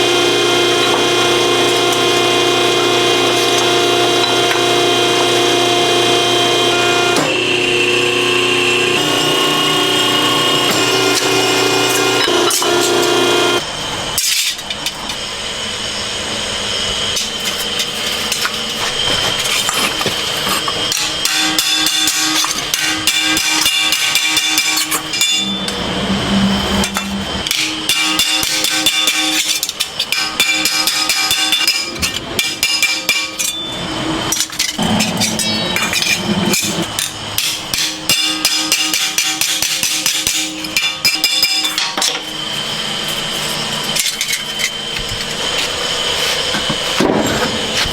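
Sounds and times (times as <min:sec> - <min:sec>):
steady ringing tone: 0:23.4 - 0:29.2
hammering on metal: 0:26.8 - 0:29.5.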